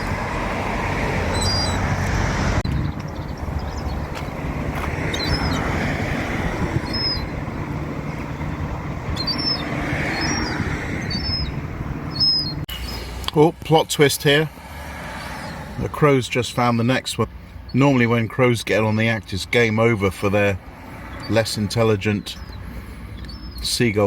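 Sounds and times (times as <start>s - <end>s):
low rumbling noise: 0.0s - 13.3s
young gull calling: 1.1s - 2.0s, 3.0s - 13.1s, 21.0s - 23.7s.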